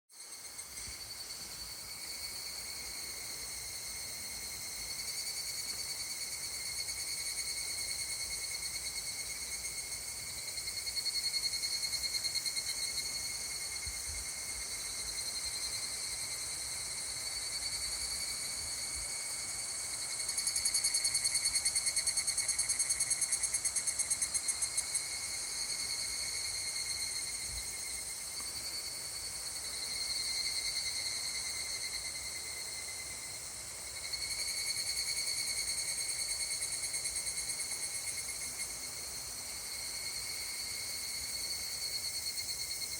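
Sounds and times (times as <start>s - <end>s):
cicadas calling in pulsing phrases: 0.2s - 42.9s.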